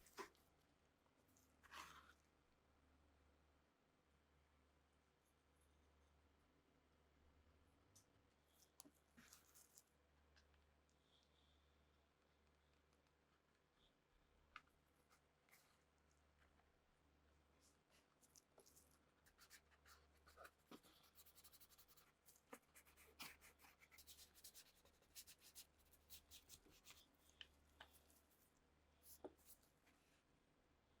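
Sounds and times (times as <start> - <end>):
hand rubbing and scratching: 18.2 - 29.8.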